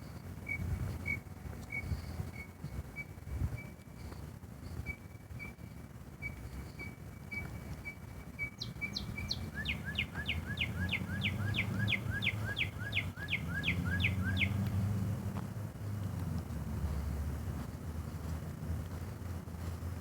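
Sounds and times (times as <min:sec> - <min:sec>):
bird singing: 0:06.2 - 0:14.6.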